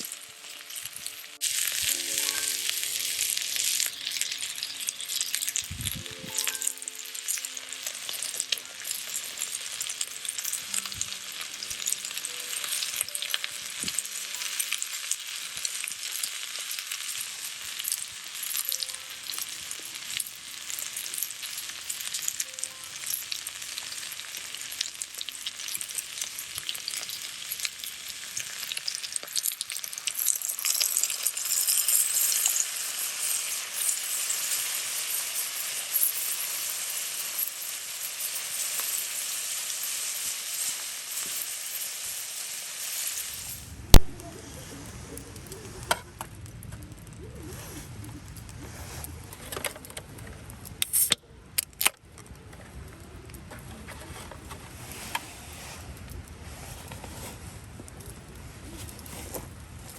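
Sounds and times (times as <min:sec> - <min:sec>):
meat sizzling in a pan: 0:00.0 - 0:44.3.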